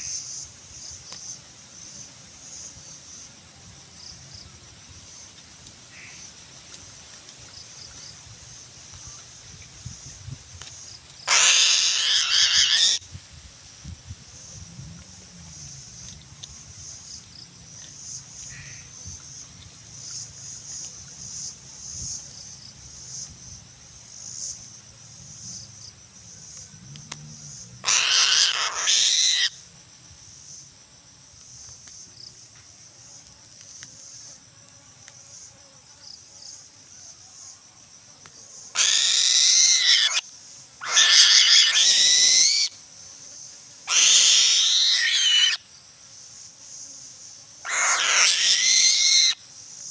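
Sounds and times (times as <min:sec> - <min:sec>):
insects buzzing: 0:00.0 - 0:49.9
bird of prey screaming: 0:11.3 - 0:13.0, 0:27.8 - 0:29.6, 0:38.8 - 0:40.2, 0:40.8 - 0:42.7, 0:43.9 - 0:45.6, 0:47.6 - 0:49.4.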